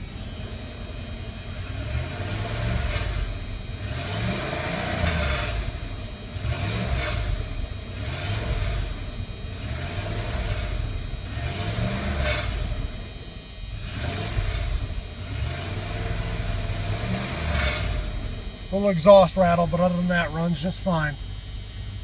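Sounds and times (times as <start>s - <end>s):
engine revving: 0.0s - 22.0s
exhaust rattle: 0.0s - 22.0s.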